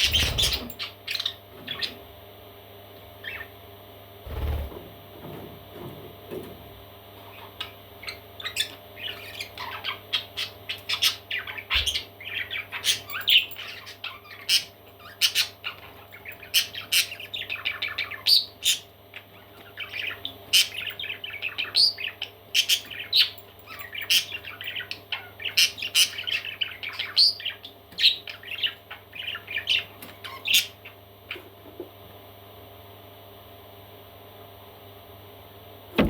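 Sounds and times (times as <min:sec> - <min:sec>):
parrot chicks chirping and squawking: 0:00.0 - 0:02.1, 0:03.2 - 0:03.6, 0:07.2 - 0:31.6.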